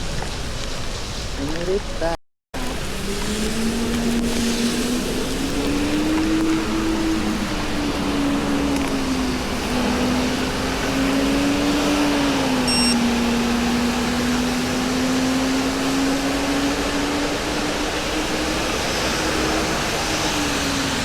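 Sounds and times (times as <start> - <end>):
wind and road noise: 0.0 - 21.0
vehicle hum drifting in pitch: 2.6 - 21.0
short high beep: 12.7 - 13.0.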